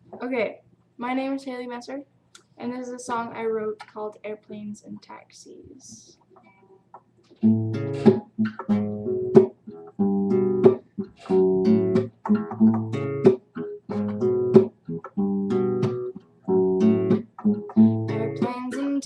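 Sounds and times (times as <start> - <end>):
acoustic guitar strumming: 7.4 - 19.0.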